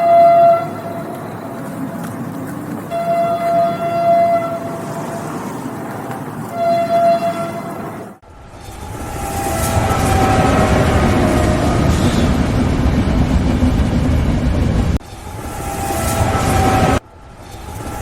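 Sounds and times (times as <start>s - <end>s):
train horn blasts: 0.0s - 1.2s, 2.9s - 5.6s, 6.5s - 7.8s, 8.7s - 12.4s, 15.1s - 17.0s
moving train noise: 0.0s - 18.0s.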